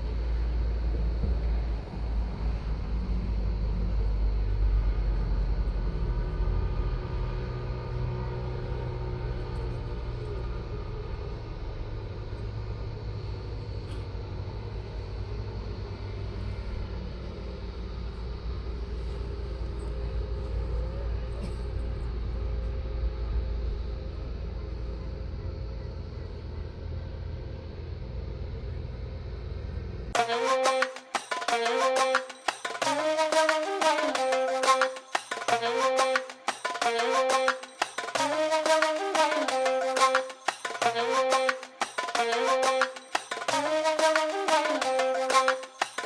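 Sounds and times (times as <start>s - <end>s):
music: 30.2s - 46.0s.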